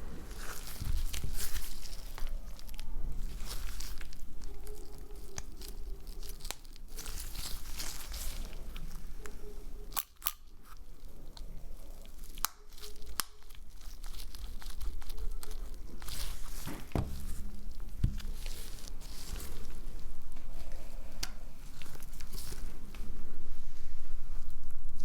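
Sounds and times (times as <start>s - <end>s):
crinkling and tearing: 0.0s - 23.2s
dull knocks: 16.7s - 18.4s.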